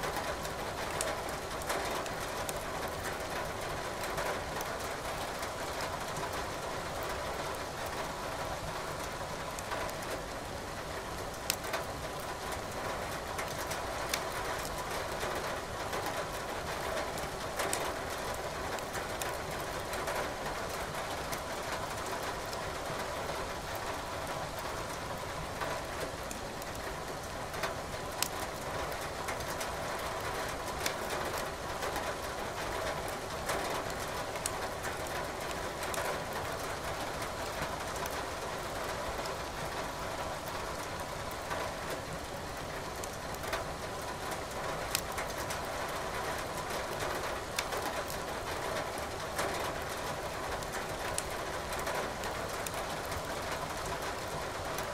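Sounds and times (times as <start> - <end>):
steady rain: 0.0 - 54.9
fire crackling and popping: 11.4 - 11.6, 28.1 - 28.3, 44.9 - 45.4.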